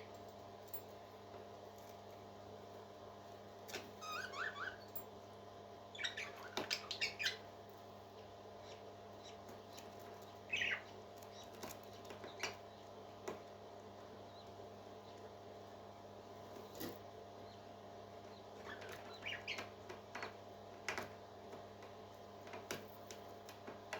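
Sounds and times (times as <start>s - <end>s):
parrot chick cheeping: 4.0s - 5.0s, 5.9s - 7.4s, 10.5s - 11.5s, 18.6s - 19.7s.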